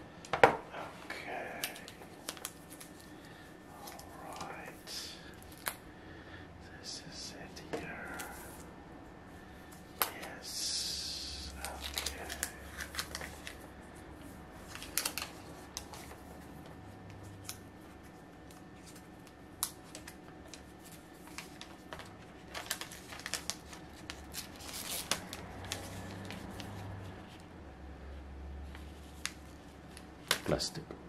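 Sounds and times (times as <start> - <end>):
low steady hum: 0.0 - 31.0
plastic film crinkling: 1.5 - 5.8, 11.5 - 13.6, 14.6 - 16.3, 18.8 - 27.4.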